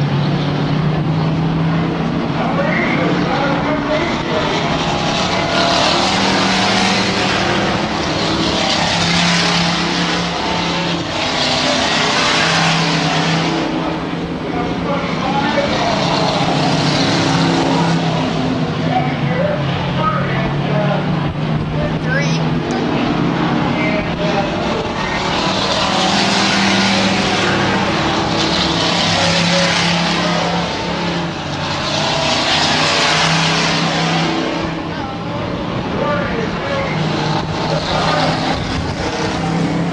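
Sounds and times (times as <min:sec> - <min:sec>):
truck engines racing: 0:00.0 - 0:39.9.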